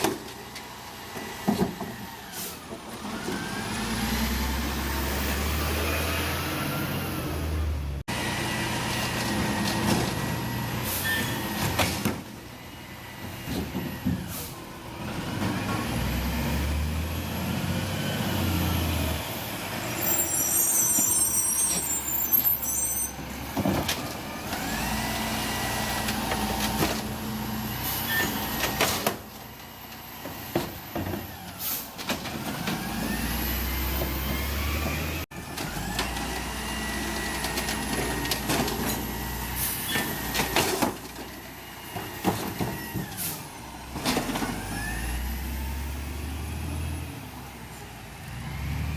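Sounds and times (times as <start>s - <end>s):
diesel engine revving: 0.4s - 11.6s, 12.4s - 22.0s, 23.2s - 28.8s, 29.4s - 48.9s
air brake hiss: 14.3s - 14.6s, 31.6s - 32.0s, 43.2s - 43.5s
hydraulic whines: 19.2s - 23.3s.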